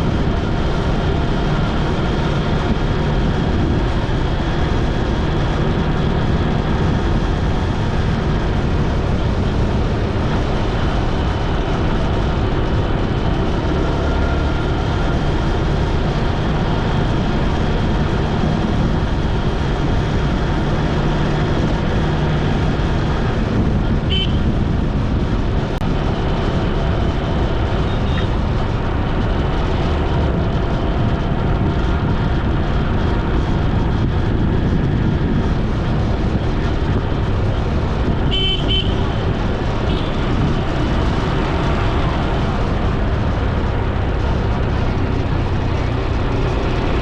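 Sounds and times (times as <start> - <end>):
road and wind noise: 0.0 - 47.0
vehicle horn toots: 24.1 - 24.5, 38.2 - 39.1.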